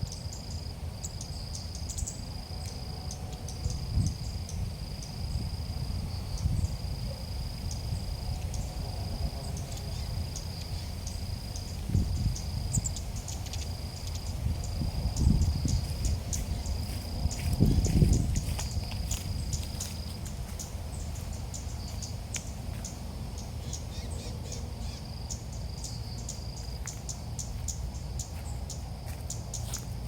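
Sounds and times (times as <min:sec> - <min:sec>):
cricket trilling: 0:00.0 - 0:30.0
low wind rumble: 0:00.0 - 0:30.0.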